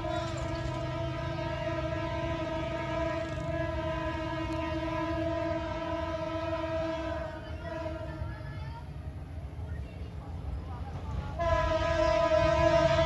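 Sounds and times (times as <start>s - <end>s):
locomotive horn blast: 0.0s - 8.4s, 11.3s - 13.0s
train rumbling past: 0.0s - 13.0s.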